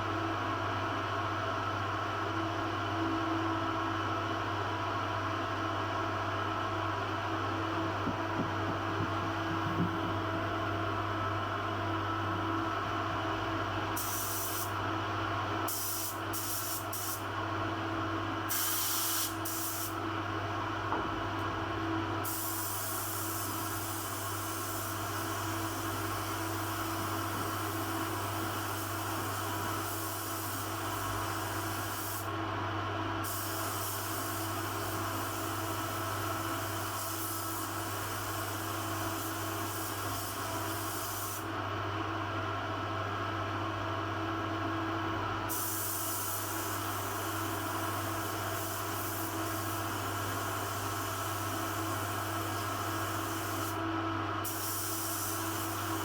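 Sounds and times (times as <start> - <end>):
steady mechanical hum: 0.0 - 56.0
paint spray gun hissing: 18.5 - 19.9.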